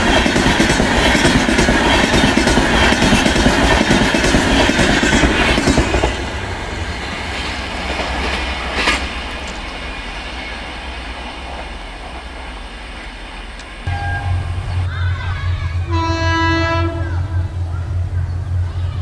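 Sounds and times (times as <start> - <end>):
train wheels clattering over rail joints: 0.0 - 6.4, 7.2 - 10.4.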